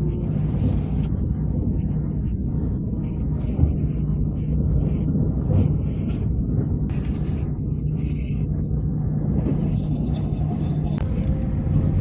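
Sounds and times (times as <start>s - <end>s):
electric train running: 10.9s - 12.0s.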